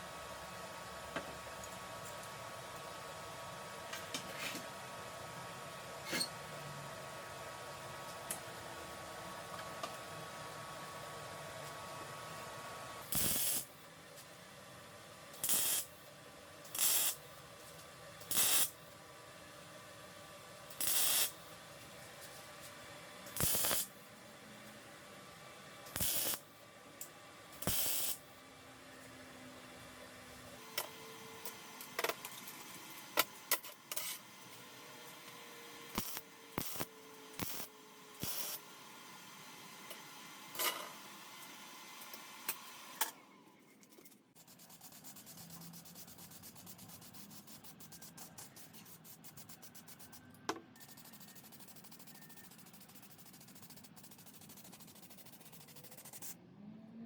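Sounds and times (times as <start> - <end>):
fast hand sanding: 44.4 - 50.0, 50.8 - 56.2.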